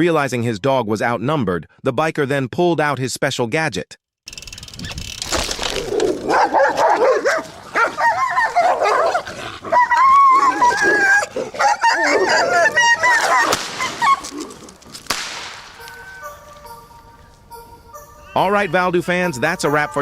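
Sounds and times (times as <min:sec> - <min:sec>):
dogs barking and crying in a fight: 0:05.8 - 0:14.9.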